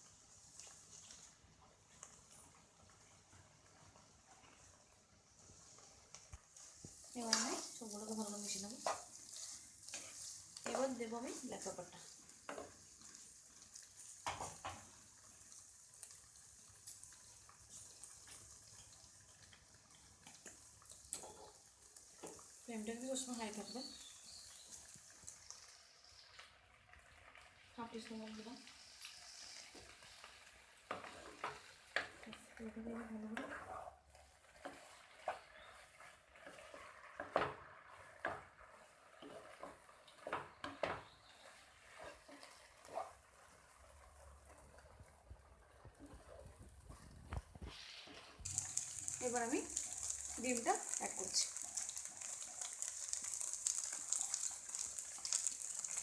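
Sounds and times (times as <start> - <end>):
noodles sizzling in a pan: 0.0 - 56.0
spatula knocking and scraping pan: 14.2 - 14.9, 30.8 - 43.2.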